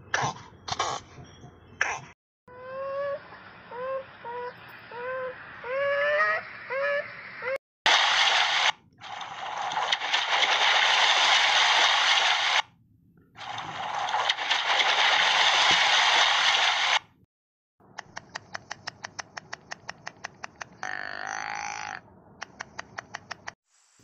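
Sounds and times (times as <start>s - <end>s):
sharp evenly spaced clicks: 17.9s - 20.8s, 22.4s - 23.6s.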